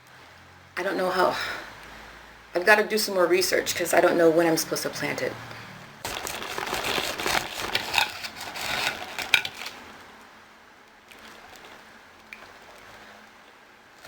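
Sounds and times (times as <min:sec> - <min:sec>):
small objects clattering on table: 0:06.1 - 0:09.8.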